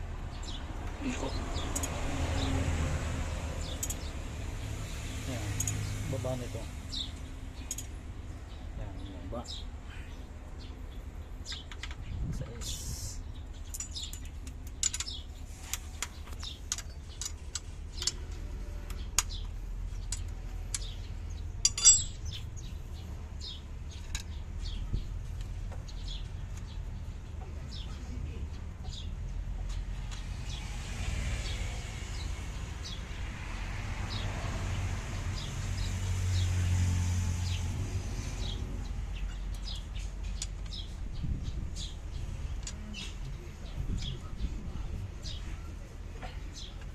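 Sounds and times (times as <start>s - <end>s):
metallic tool clicks and clinks: 3.8s - 4.1s, 5.6s - 5.8s, 7.7s - 7.9s, 21.6s - 22.3s.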